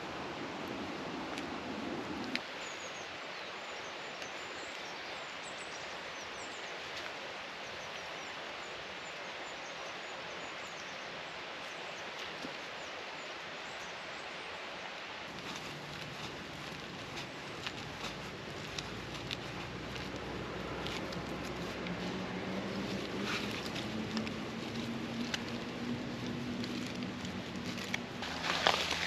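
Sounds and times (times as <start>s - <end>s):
outdoor background noise: 0.0s - 29.0s
small birds chirping: 15.3s - 29.0s.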